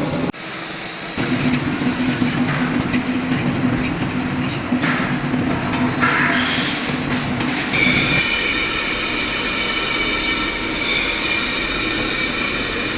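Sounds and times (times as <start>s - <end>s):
high squealing machine whine: 7.5s - 12.9s.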